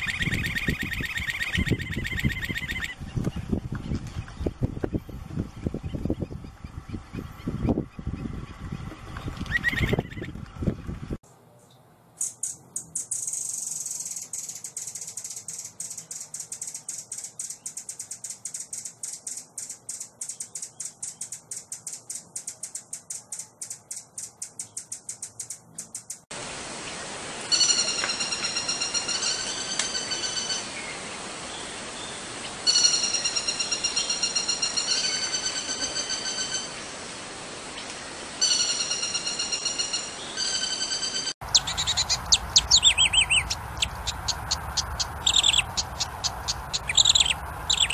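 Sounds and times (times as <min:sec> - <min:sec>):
songbird rattling trill: 0:00.0 - 0:10.9, 0:12.2 - 0:26.3, 0:27.5 - 0:30.8, 0:32.7 - 0:36.8, 0:38.4 - 0:47.9
songbird repeated clear notes: 0:37.8 - 0:47.9.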